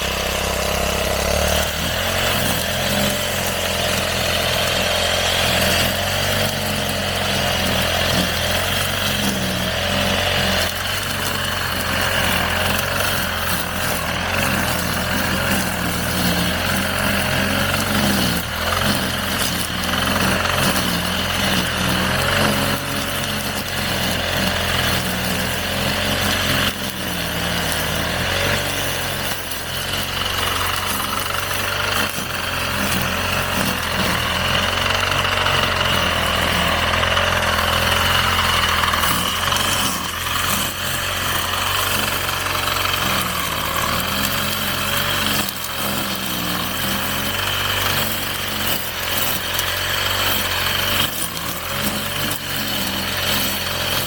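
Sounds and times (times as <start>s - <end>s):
brush cutter engine running: 0.0s - 54.0s.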